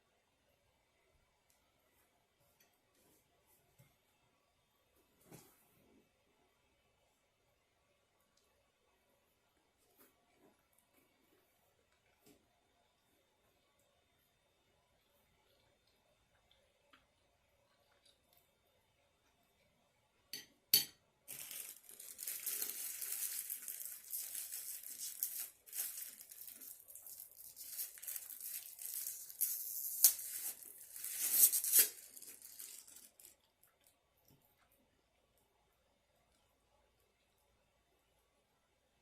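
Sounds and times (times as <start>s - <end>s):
packaging crinkling and tearing: 21.3s - 33.5s.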